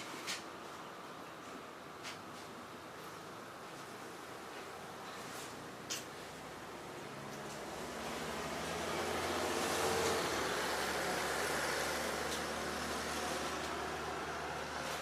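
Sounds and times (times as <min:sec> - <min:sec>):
road vehicle rushing: 0:06.2 - 0:15.0.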